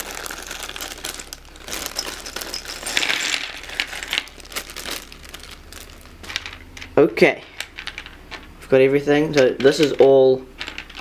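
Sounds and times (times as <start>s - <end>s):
plastic bag crinkling: 0.0s - 6.9s
plastic pieces clattering: 0.0s - 8.5s, 9.3s - 11.0s.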